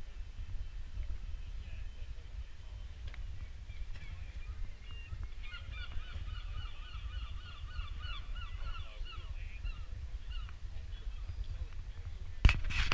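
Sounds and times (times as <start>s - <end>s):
bird calling rapid repeated notes: 4.8s - 10.5s.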